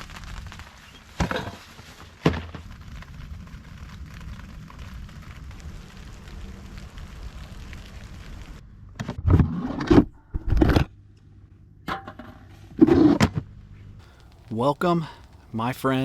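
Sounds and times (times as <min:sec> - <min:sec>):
light rain pattering: 0:00.0 - 0:08.6, 0:13.8 - 0:16.0.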